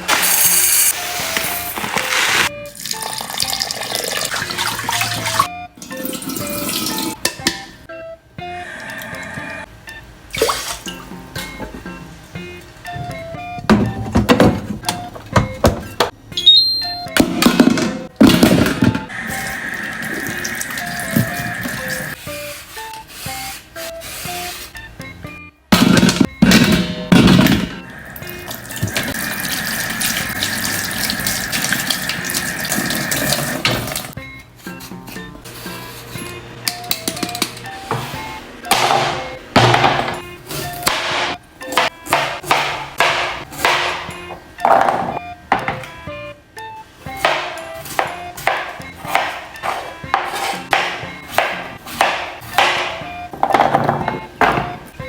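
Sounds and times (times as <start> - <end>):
music with short bright notes: 10.9 - 19.1, 33.6 - 55.0.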